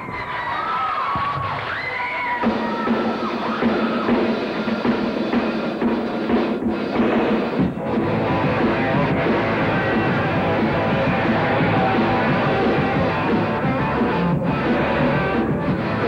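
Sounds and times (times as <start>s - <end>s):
rock band playing live: 2.5s - 16.0s
electric guitar: 7.0s - 16.0s.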